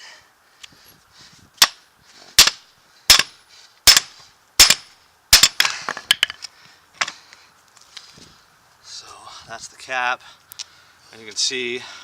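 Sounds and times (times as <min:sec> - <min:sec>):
hammer striking steel: 0:02.4 - 0:03.3, 0:03.9 - 0:05.7.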